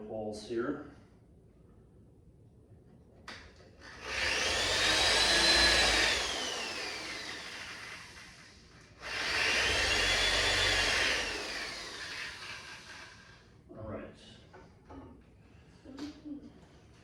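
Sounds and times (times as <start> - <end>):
power drill boring into wood: 3.8 - 13.4.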